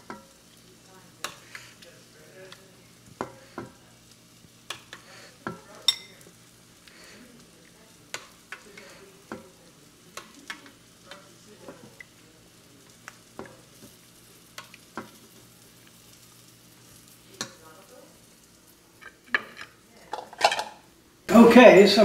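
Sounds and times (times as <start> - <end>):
utensil clicking against a pan: 0.0 - 0.3, 1.2 - 1.7, 4.6 - 7.0, 8.1 - 12.2, 14.5 - 15.2, 17.3 - 17.6
food sizzling in a pan: 0.0 - 22.0.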